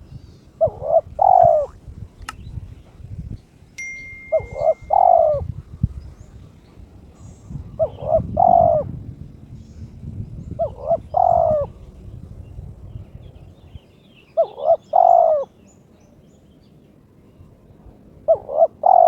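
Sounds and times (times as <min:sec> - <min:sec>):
dove cooing: 0:00.6 - 0:01.8, 0:04.4 - 0:05.6, 0:07.2 - 0:09.0, 0:10.5 - 0:11.8, 0:14.4 - 0:15.6, 0:18.2 - 0:19.0.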